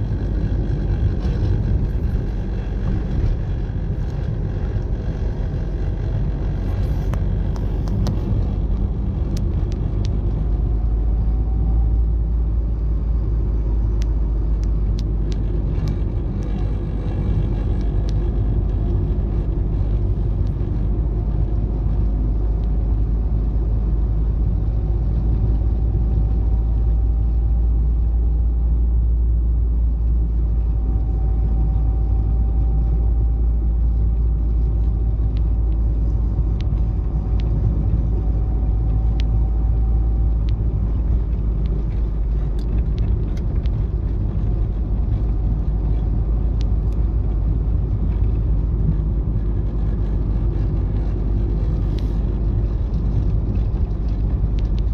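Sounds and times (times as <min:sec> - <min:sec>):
car engine and road rumble: 0:00.0 - 0:54.9
light ticks: 0:36.6 - 0:38.0, 0:38.9 - 0:45.6.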